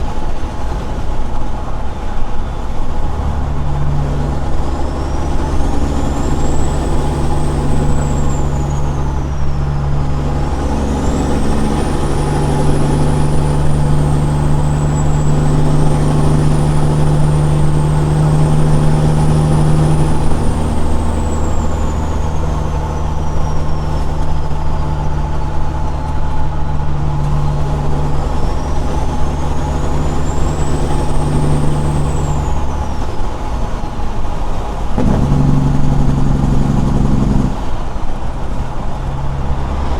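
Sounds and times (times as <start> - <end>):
truck diesel engine drone: 0.0 - 39.9
faint high whine: 35.0 - 37.8.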